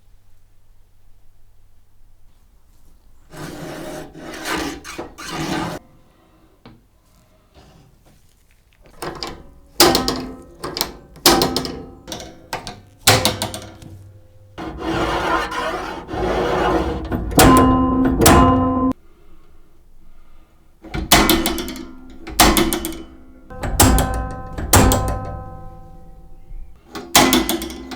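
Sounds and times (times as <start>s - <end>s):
mechanical rattling: 8.9s - 19.0s, 21.0s - 26.7s
wooden and metal clacks: 8.9s - 19.0s, 20.9s - 27.9s.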